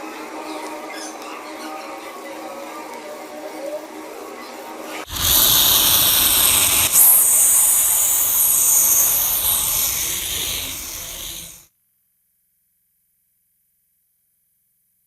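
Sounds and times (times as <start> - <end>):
pressurised air hissing: 5.1 - 11.6.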